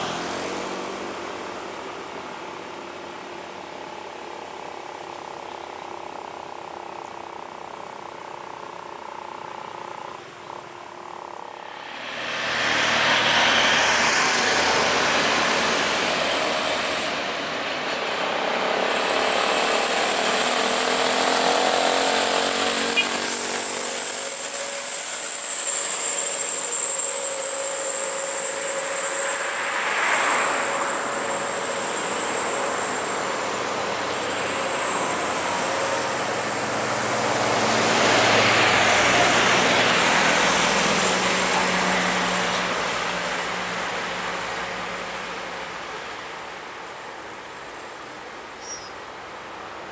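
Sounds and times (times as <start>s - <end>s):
steady high-pitched tone: 1.4s - 48.0s
heavy trucks passing: 10.7s - 49.9s.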